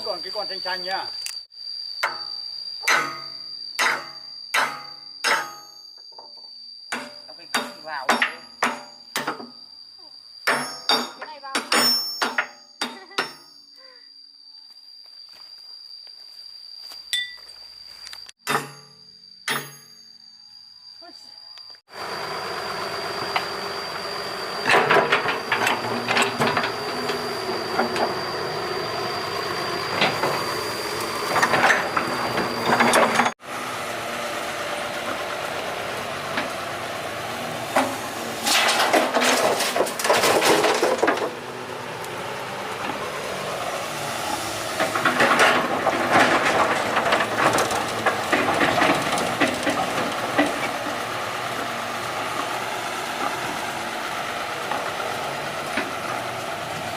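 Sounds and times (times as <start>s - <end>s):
excavator diesel engine running: 21.9s - 56.9s
machine clattering and scraping: 24.6s - 33.4s, 37.6s - 56.9s.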